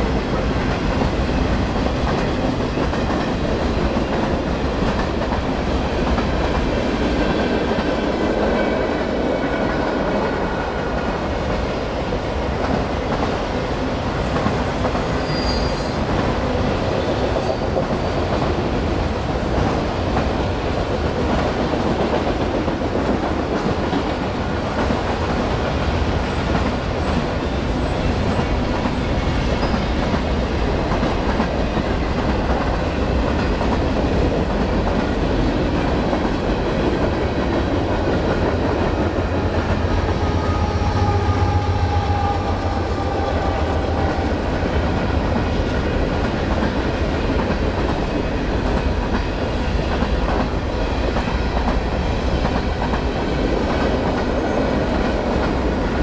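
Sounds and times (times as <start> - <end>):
faint wheel squeal: 15.0 - 16.0.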